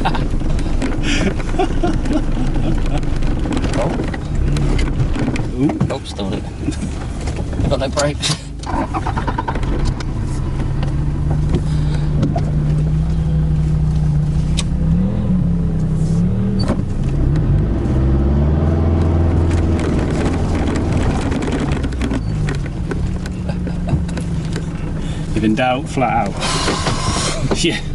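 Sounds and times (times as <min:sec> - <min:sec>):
truck engine revving: 0:00.0 - 0:07.2, 0:08.0 - 0:27.5
truck knocks and clatters: 0:00.0 - 0:14.9, 0:16.6 - 0:27.9.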